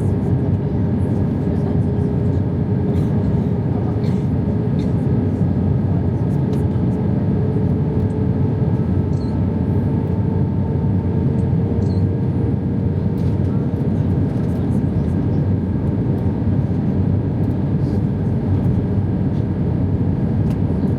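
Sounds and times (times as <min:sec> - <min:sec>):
airplane cabin airflow and engine: 0:00.0 - 0:20.9.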